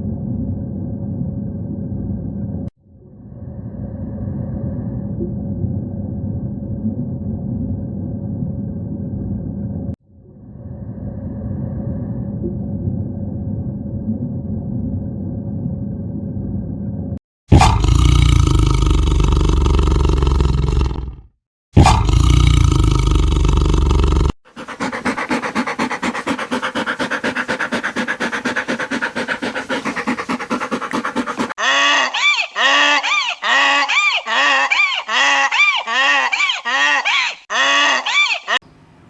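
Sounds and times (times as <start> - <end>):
pulsing animal call: 17.5 - 21.1, 21.8 - 38.6
animal roaring: 17.5 - 31.8.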